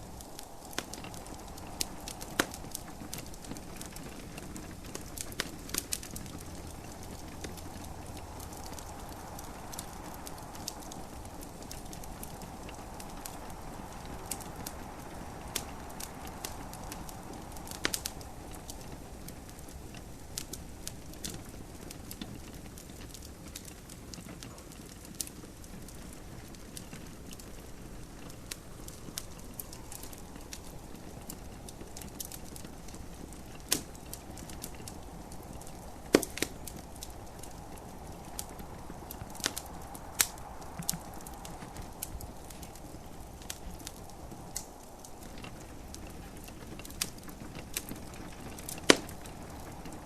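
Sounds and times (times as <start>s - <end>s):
low hiss: 0.0s - 50.0s
wood fire crackling: 0.0s - 50.0s.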